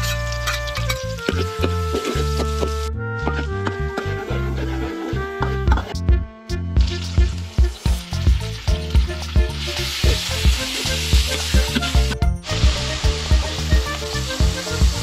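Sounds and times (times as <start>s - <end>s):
music with steady beat: 0.1s - 15.0s
meat sizzling in oil: 6.8s - 15.0s.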